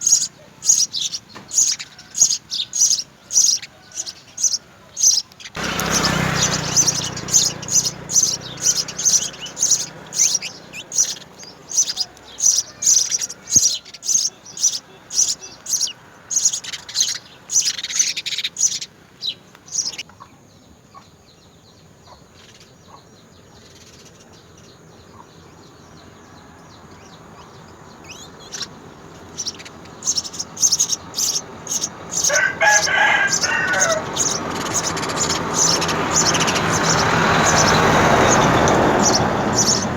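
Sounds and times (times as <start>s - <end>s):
longer lower bird call: 0.0s - 39.9s
sparrows chirping: 0.0s - 39.9s.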